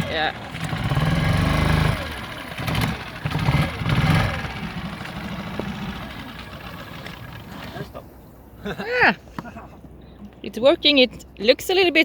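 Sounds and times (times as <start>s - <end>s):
small outboard motor running: 0.0s - 8.2s.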